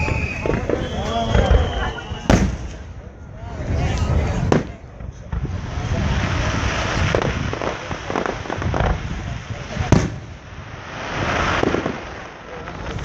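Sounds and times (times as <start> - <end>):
firework bang: 0.0 - 3.0, 3.7 - 13.0
fireworks crackling: 0.0 - 13.0.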